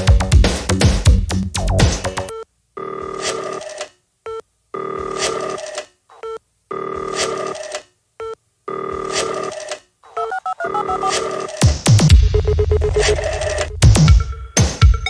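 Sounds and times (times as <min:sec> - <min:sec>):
telephone ringing: 0:02.3 - 0:03.7, 0:04.3 - 0:11.6
short electronic beeps: 0:10.2 - 0:11.3.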